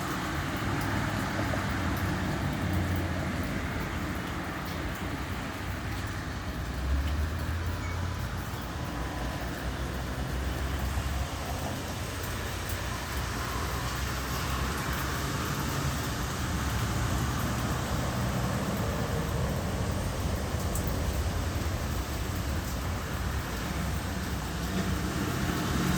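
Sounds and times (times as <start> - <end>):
engines humming: 0.0 - 25.9
tyre hiss on road: 8.9 - 25.9.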